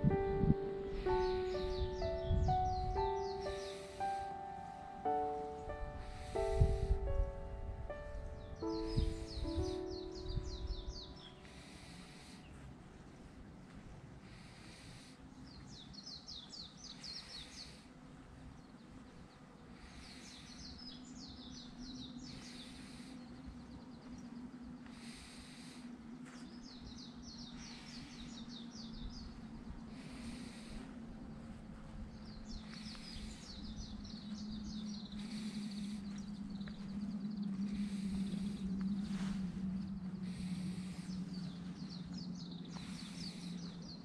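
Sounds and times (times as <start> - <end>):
soft hiss: 0.0 - 10.4
songbird singing: 0.0 - 44.0
steady low hum: 0.0 - 44.0.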